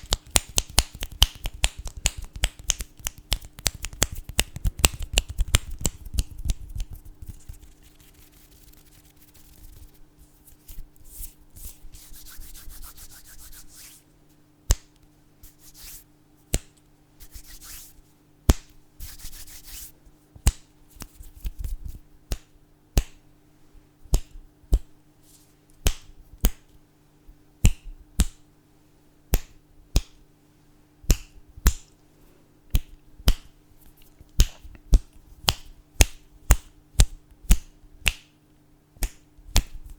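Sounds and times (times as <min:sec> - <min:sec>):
finger snapping: 0:00.0 - 0:07.0, 0:14.7 - 0:15.1, 0:22.3 - 0:23.2, 0:24.1 - 0:24.9, 0:29.3 - 0:30.2, 0:34.3 - 0:38.3, 0:39.0 - 0:39.9
fingers rubbing together: 0:00.0 - 0:14.0, 0:15.4 - 0:18.0, 0:19.0 - 0:20.0.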